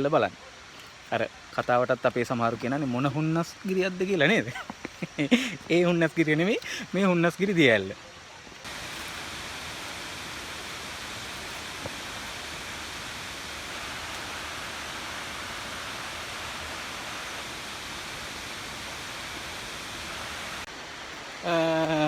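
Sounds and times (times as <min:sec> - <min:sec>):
waterfall rushing: 0:08.6 - 0:22.0.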